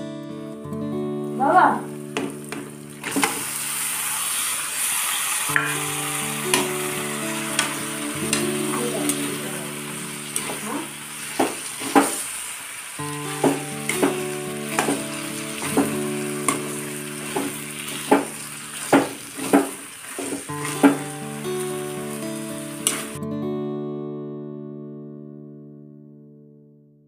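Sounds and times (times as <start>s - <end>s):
background music: 0.0s - 4.0s, 5.6s - 11.3s, 13.0s - 18.9s, 20.5s - 25.0s
chicken sizzling in hot oil: 2.9s - 23.1s.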